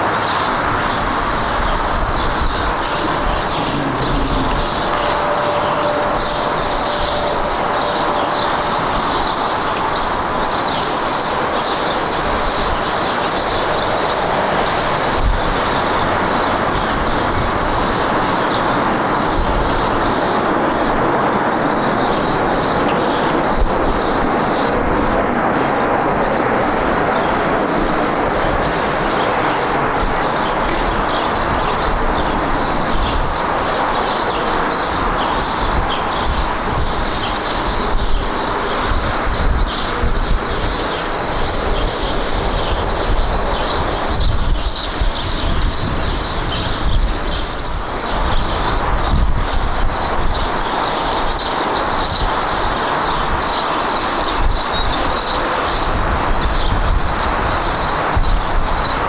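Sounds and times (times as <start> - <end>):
jet engine noise: 0.0 - 59.0.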